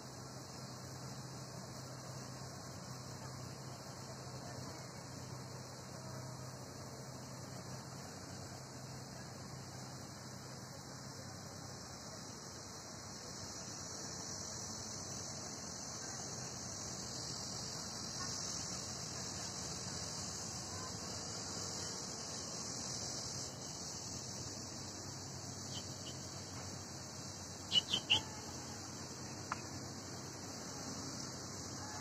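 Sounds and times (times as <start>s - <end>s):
outdoor hiss and hum: 0.0s - 32.0s
high bird chirps: 27.7s - 28.4s.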